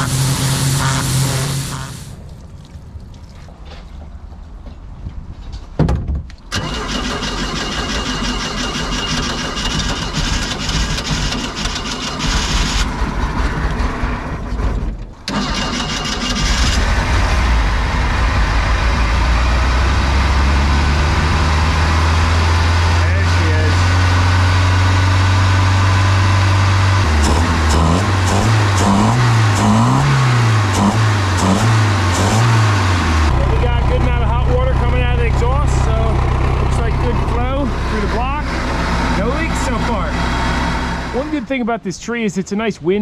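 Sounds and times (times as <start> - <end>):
boat engine cranking: 0.0 - 3.5, 6.5 - 14.0
boat engine idling: 0.0 - 3.6, 32.9 - 41.6.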